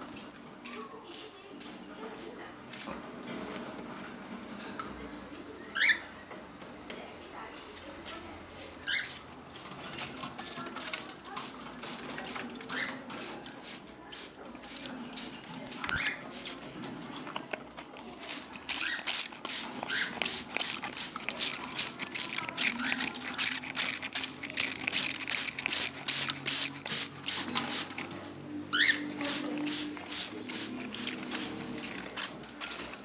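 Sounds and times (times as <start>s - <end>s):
water spraying and splashing: 18.2s - 28.1s, 28.7s - 33.0s.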